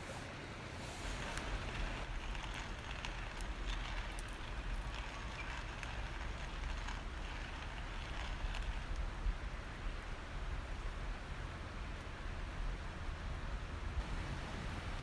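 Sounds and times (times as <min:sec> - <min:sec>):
campfire crackling: 0:00.7 - 0:12.2.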